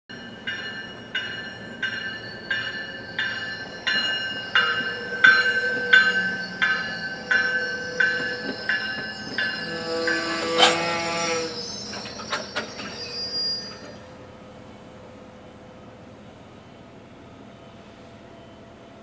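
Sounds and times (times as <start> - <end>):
railroad bell clanging: 0.1 - 14.1.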